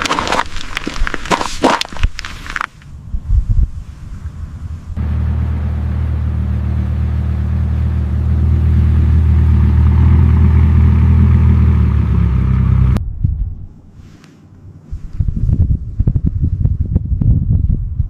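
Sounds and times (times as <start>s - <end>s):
old car engine running: 5.0s - 13.0s.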